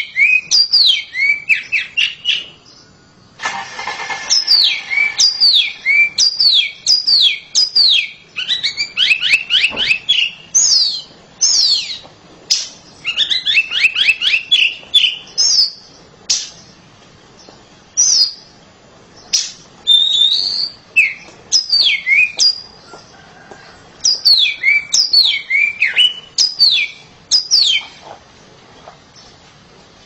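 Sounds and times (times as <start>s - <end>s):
bird singing whistled notes: 0.0s - 3.1s, 4.2s - 16.8s, 18.0s - 18.6s, 19.2s - 22.7s, 24.0s - 28.0s.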